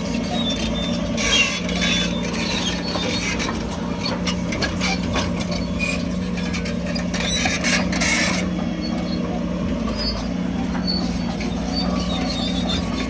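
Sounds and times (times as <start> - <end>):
high squeaks and clicks: 0.0 - 9.3, 9.9 - 13.0
diesel engine running: 0.0 - 13.0.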